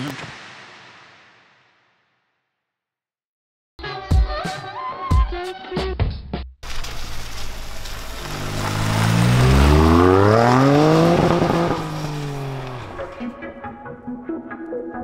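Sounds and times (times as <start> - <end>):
music: 3.8 - 6.6, 13.1 - 15.0
tyres spraying gravel: 6.6 - 13.3
car engine accelerating hard: 6.7 - 13.2.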